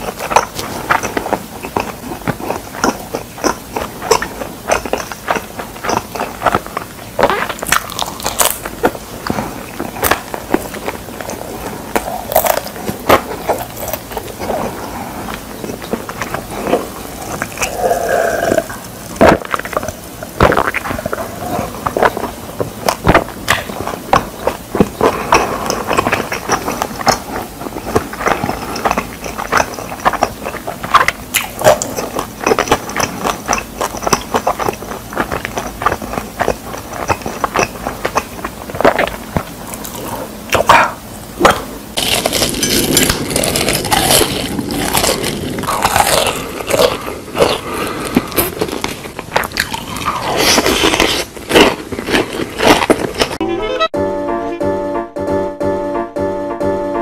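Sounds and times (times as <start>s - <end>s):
person gulping drink: 0.0s - 53.4s
wet chewing: 0.0s - 53.4s.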